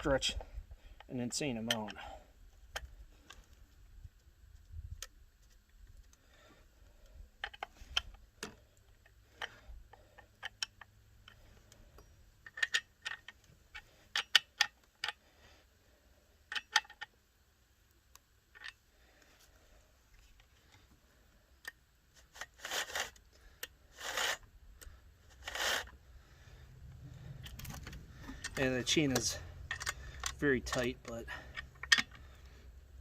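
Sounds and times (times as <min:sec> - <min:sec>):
metallic clicks and ticks: 0:01.0 - 0:02.0, 0:07.4 - 0:15.2, 0:27.3 - 0:32.4.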